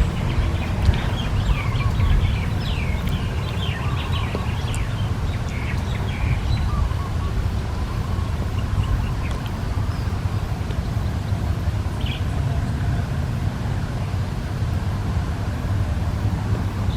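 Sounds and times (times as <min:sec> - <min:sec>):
small birds chirping: 0:00.0 - 0:12.4
low rumble: 0:00.0 - 0:16.8.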